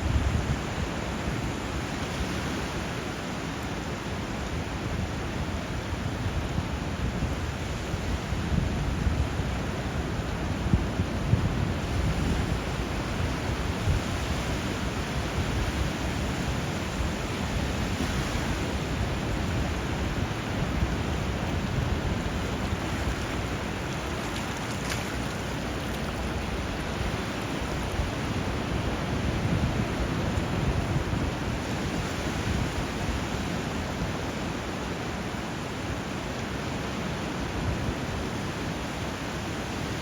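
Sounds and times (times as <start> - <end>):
flowing river water: 0.0 - 40.0
sea waves breaking: 11.5 - 40.0.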